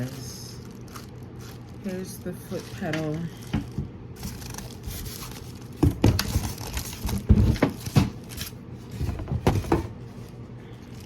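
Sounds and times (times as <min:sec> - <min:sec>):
packaging rustling: 0:00.0 - 0:11.0
knocks and thumps of handled parts: 0:05.8 - 0:08.3, 0:08.9 - 0:10.0.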